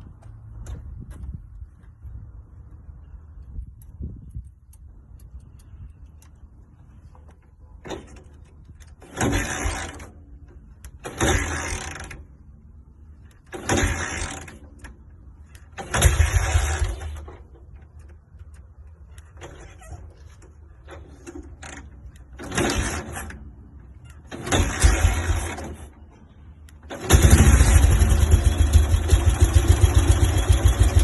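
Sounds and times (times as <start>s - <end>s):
motorcycle engine revving: 15.8s - 17.3s, 24.4s - 25.8s, 26.9s - 31.0s.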